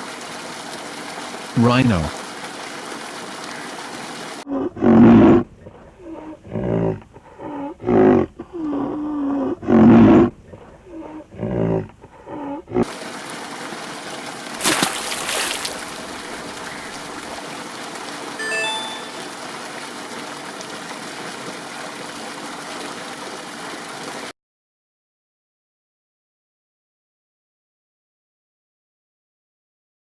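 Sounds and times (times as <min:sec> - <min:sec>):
rhinoceros grunting and moaning: 0:04.5 - 0:12.9.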